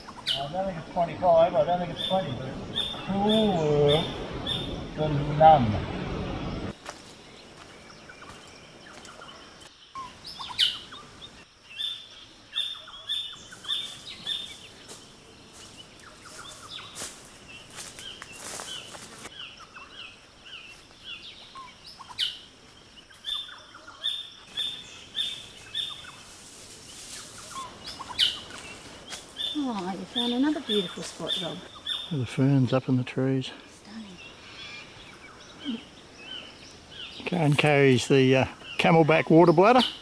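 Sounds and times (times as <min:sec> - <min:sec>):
faint air hiss in foliage: 0:00.0 - 0:40.0
sharp downward-sliding bird calls: 0:01.9 - 0:06.8
high repeated bird chirps: 0:02.0 - 0:05.0.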